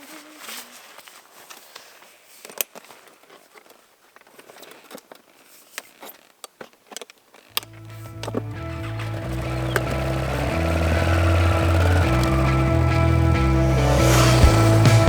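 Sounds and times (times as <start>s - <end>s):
background music with bass line: 7.7s - 15.0s.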